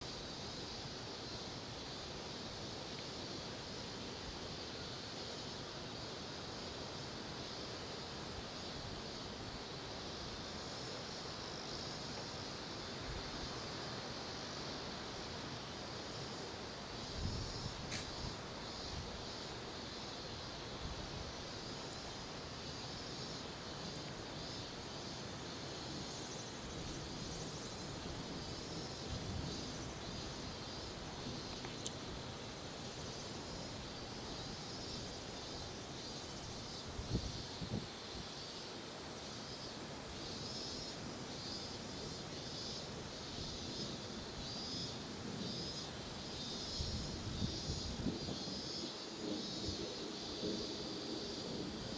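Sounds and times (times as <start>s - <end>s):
insects chirping: 0.0s - 51.9s
wind rumble on microphone: 17.0s - 19.2s, 36.9s - 38.0s, 46.7s - 48.5s
brief knock: 17.9s - 18.2s.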